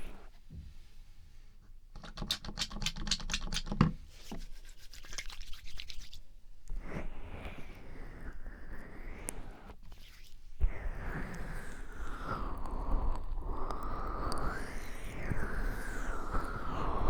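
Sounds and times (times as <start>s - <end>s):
hands rubbing a microphone: 2.0s - 6.2s.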